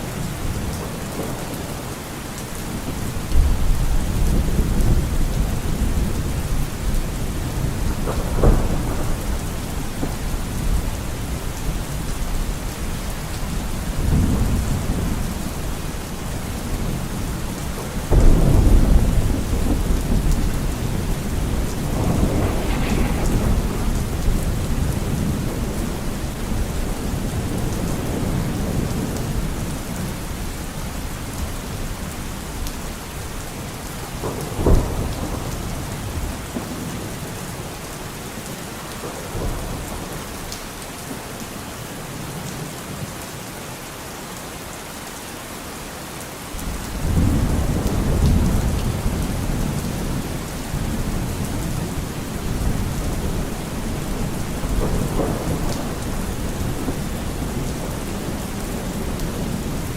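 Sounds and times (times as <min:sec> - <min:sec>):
steady rain: 0:00.0 - 0:59.9
thunder rumbling: 0:02.6 - 0:30.1, 0:46.6 - 0:59.9
sharp thunder crack: 0:18.2 - 0:27.3.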